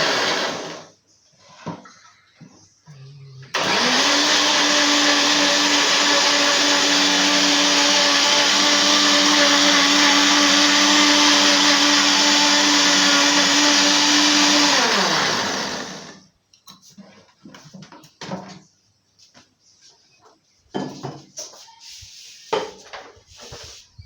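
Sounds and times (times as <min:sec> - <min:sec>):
electric blender motor: 0:00.0 - 0:00.9, 0:03.5 - 0:16.2.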